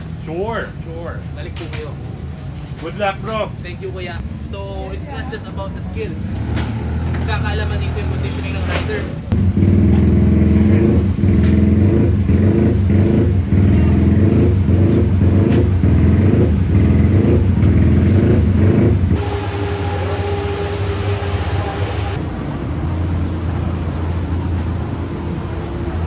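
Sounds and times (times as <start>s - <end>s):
racing motorcycle engine running: 6.1s - 26.0s
thin steady whine: 19.2s - 26.0s.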